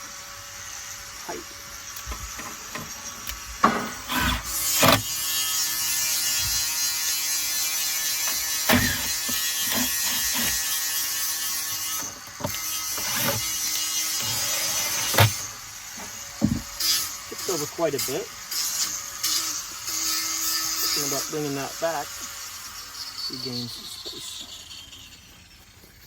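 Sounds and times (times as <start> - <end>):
impact driver rattling: 2.1 - 5.2, 8.7 - 10.6, 16.0 - 16.8
knocks: 16.4 - 16.7.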